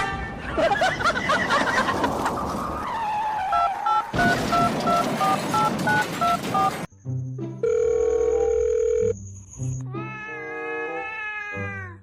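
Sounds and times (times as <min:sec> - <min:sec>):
telephone keypad dialing beeps: 0:05.6 - 0:06.7.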